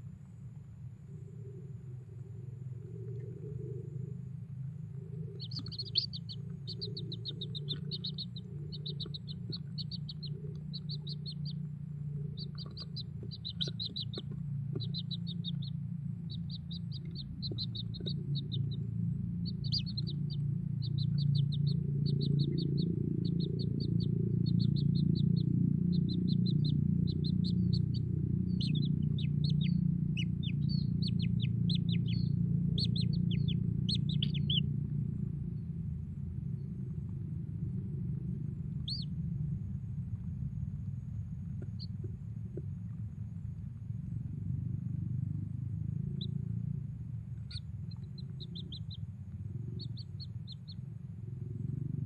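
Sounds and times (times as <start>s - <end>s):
low rumble: 0.0s - 52.0s
bird chicks chattering calls: 4.9s - 34.9s, 38.6s - 39.1s, 47.4s - 51.8s.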